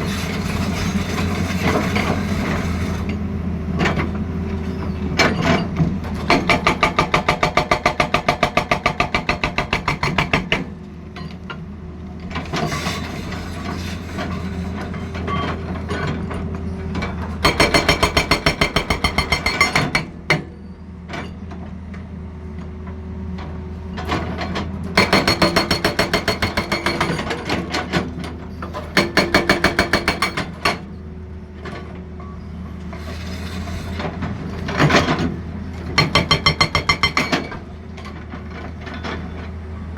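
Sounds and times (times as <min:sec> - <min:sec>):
hydraulic breaker hammering: 0:06.2 - 0:10.7, 0:17.4 - 0:20.5, 0:25.0 - 0:27.7, 0:28.9 - 0:30.9, 0:35.9 - 0:37.7.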